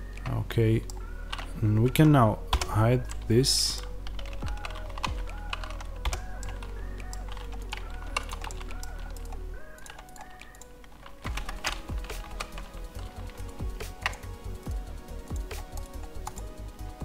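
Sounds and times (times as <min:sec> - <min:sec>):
quiet background music: 0:00.0 - 0:17.0
computer keyboard keys clicking: 0:00.2 - 0:16.6
mouse buttons clicking: 0:05.2 - 0:14.3.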